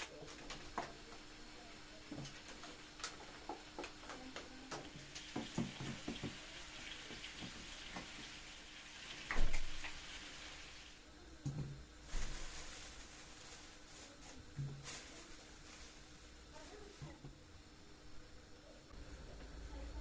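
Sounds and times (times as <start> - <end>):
objects knocking and clattering: 2.1 - 6.4
water running from a tap: 3.5 - 11.0.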